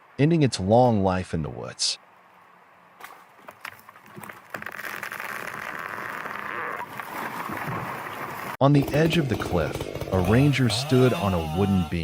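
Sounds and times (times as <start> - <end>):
faint crackles and snaps: 3.4 - 6.9
chainsaw cutting: 8.7 - 12.0.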